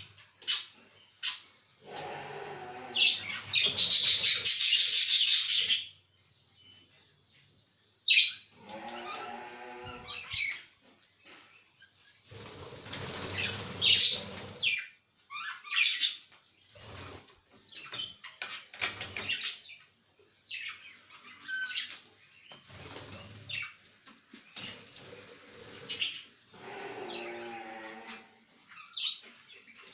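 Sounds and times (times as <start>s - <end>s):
budgerigars chirping: 3.0s - 6.0s, 13.2s - 14.8s
wings flapping: 12.3s - 14.6s.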